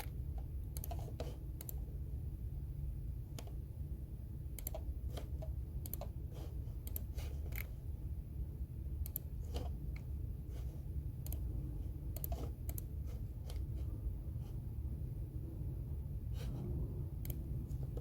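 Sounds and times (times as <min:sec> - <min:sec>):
keyboard typing clicks: 0:00.0 - 0:01.8, 0:04.5 - 0:06.2, 0:06.8 - 0:07.7, 0:09.0 - 0:10.1, 0:11.2 - 0:11.5, 0:12.1 - 0:12.9, 0:17.2 - 0:18.0
low room hum: 0:00.0 - 0:18.0.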